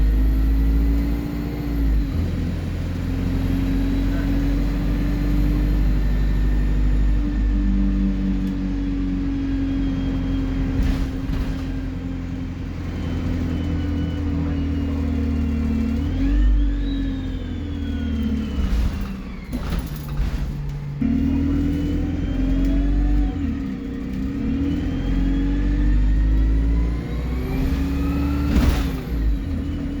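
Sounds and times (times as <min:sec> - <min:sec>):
bus diesel engine running: 0:00.0 - 0:30.0
turbocharger whistle: 0:13.0 - 0:19.0.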